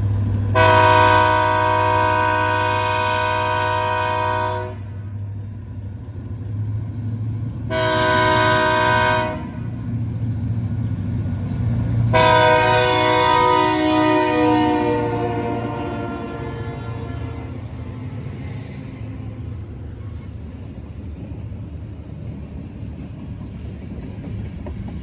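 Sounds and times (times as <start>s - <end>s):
diesel locomotive engines rumbling: 0.0s - 25.0s
locomotive air horn blasts: 0.6s - 4.9s, 7.7s - 9.6s, 12.1s - 17.7s.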